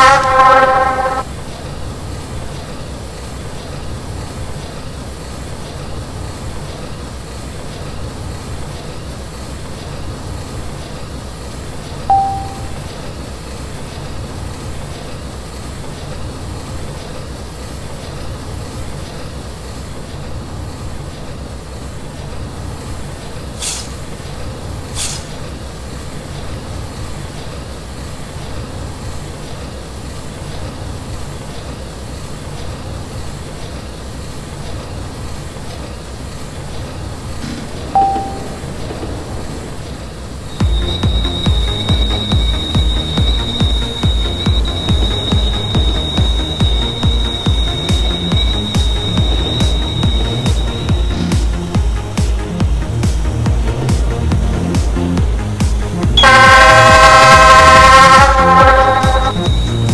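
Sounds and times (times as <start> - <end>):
short tone: 0.0 - 1.2, 12.1 - 12.9, 37.4 - 38.9, 40.6 - 52.8, 56.1 - 59.9
train rumbling: 0.0 - 59.9
bursts of hiss: 38.6 - 59.9.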